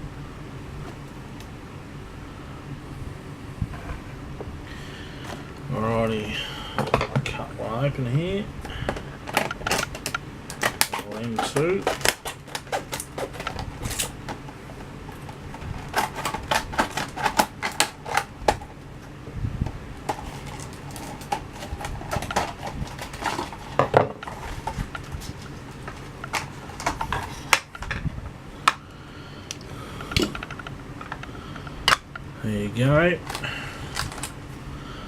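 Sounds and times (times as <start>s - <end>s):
plastic packaging snapping and crackling: 8.8s - 18.8s, 20.0s - 28.0s, 33.2s - 34.4s.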